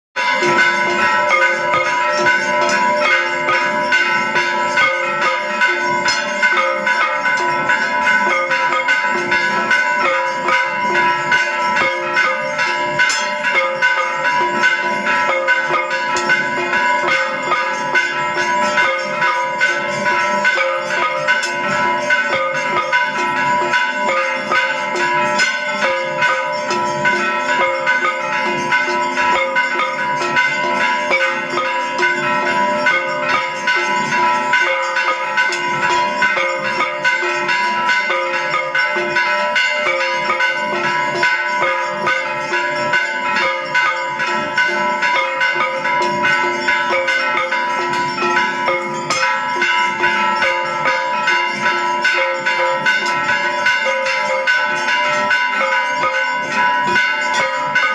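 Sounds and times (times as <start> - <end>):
temple bells ringing: 0.2 - 57.9.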